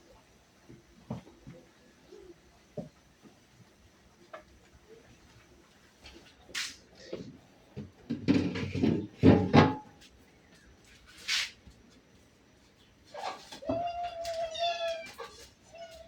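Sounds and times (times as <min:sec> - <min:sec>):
objects knocking and rattling: 0:07.8 - 0:10.0.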